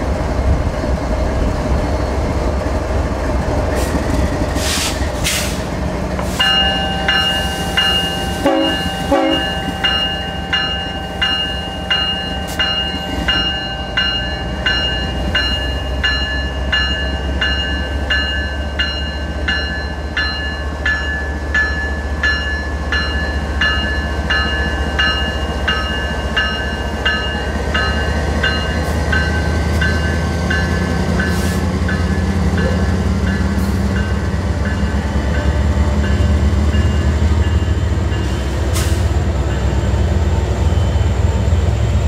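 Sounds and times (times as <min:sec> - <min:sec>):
train rumbling: 0:00.0 - 0:42.0
bell ringing: 0:06.4 - 0:32.0.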